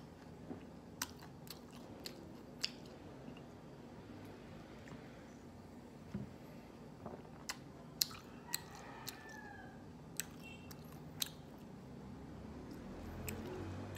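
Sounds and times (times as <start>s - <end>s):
person chewing: 0.1s - 3.6s, 7.3s - 9.5s, 10.1s - 11.7s, 12.7s - 13.6s.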